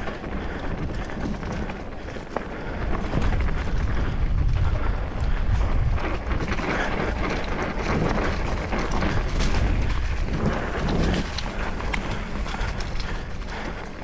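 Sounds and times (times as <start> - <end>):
bike rattles and clicks: 0.0 - 14.0
bike tyre noise on dirt: 0.0 - 14.0
wind buffeting microphone: 0.0 - 14.0.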